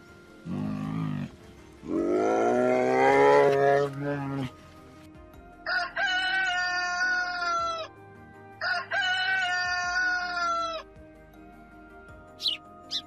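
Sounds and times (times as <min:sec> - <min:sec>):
rooster crowing: 0:05.6 - 0:07.9, 0:08.6 - 0:10.8.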